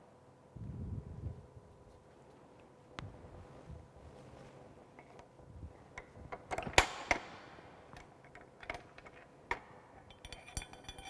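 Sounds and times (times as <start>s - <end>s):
metal pipe and tools clicking: 7.9s - 11.0s.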